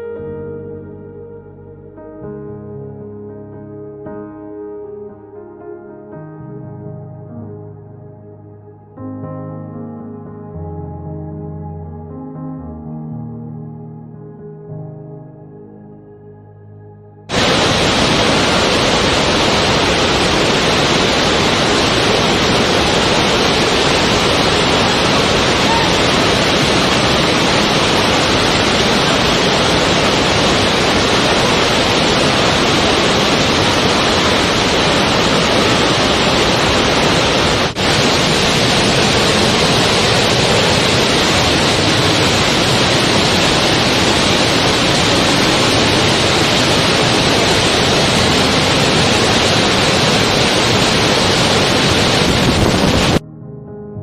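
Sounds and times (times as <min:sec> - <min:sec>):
waterfall rushing: 0:17.3 - 0:53.2.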